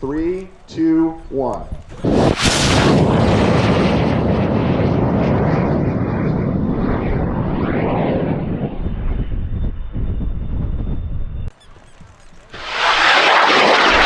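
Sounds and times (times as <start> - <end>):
rocket motor roaring: 1.8 - 10.1, 12.4 - 14.0.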